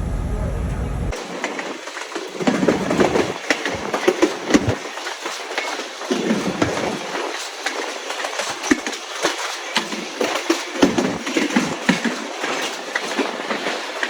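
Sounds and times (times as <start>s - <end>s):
train coach running noise: 0.0s - 8.9s.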